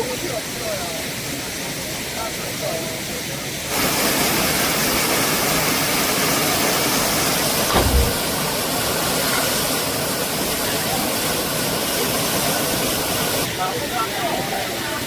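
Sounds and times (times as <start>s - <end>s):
waterfall rushing: 3.7s - 15.0s
low thump: 7.7s - 8.4s.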